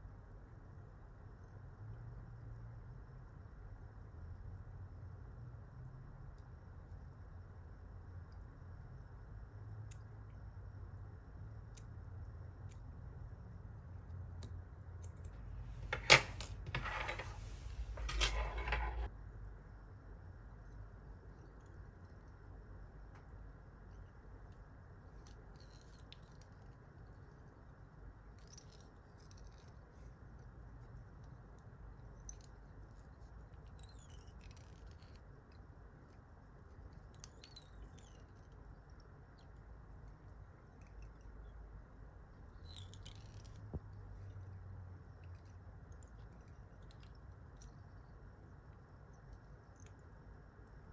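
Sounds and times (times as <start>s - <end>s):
rustling and scraping: 15.3s - 19.1s.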